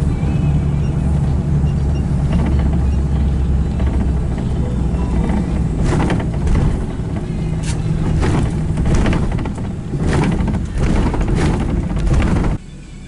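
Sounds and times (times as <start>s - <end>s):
moving car rumbling: 0.0s - 13.0s
rushing crackles: 3.6s - 12.6s.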